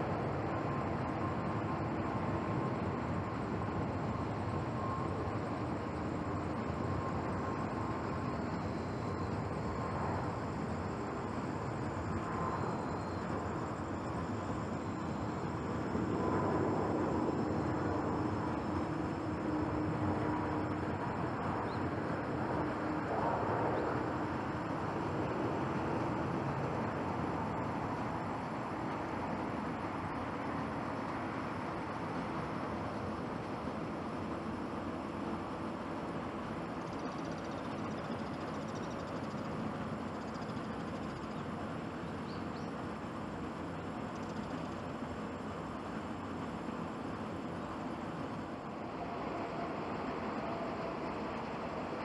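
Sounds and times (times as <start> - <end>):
jet engine rush: 0.0 - 38.8.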